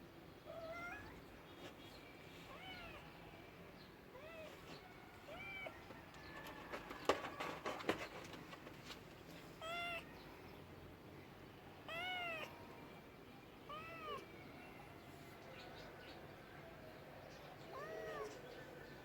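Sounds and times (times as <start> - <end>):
cat meowing: 0.5 - 1.2, 2.5 - 3.2, 4.1 - 5.8, 9.6 - 10.1, 11.9 - 12.8, 13.7 - 14.4, 17.7 - 18.4
flurry of clicks and knocks: 5.8 - 9.3.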